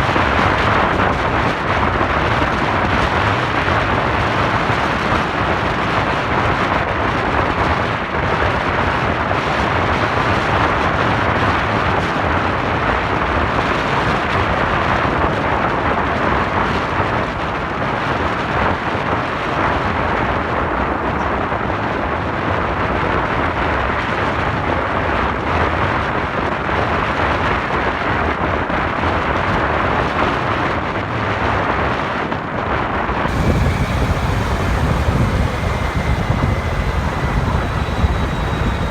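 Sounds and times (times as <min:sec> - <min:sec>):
low rumble: 0:33.3 - 0:38.9
motorcycle road noise: 0:33.3 - 0:38.9
wind buffeting microphone: 0:33.3 - 0:38.9.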